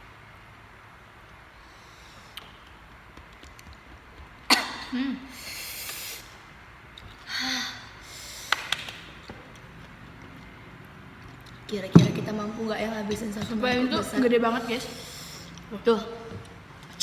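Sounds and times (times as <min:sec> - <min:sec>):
small mouth clicks: 0:02.3 - 0:02.8
sharp exhale: 0:05.3 - 0:06.4, 0:07.3 - 0:08.6, 0:14.8 - 0:15.6.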